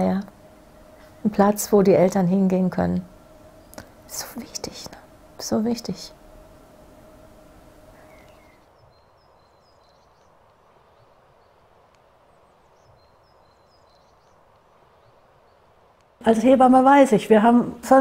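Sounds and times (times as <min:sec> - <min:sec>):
low steady hum: 0:00.0 - 0:18.0
small birds chirping: 0:07.5 - 0:16.6.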